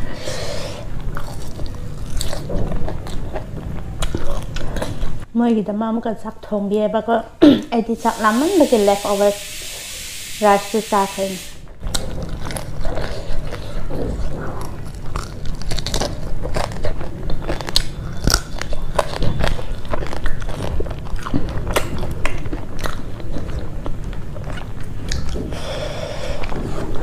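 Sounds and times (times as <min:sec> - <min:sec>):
person chewing food: 0:00.0 - 0:05.3, 0:11.8 - 0:27.0.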